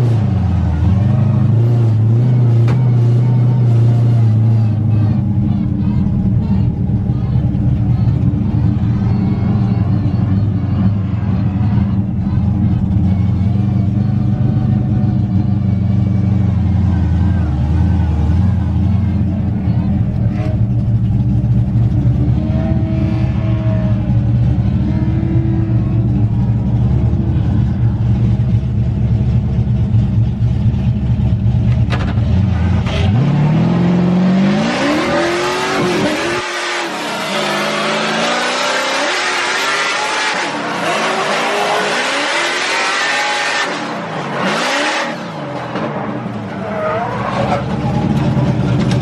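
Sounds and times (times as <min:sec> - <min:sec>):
car engine droning and revving: 0:00.0 - 0:49.0
loud tyre squeal: 0:22.2 - 0:28.1, 0:34.6 - 0:48.1.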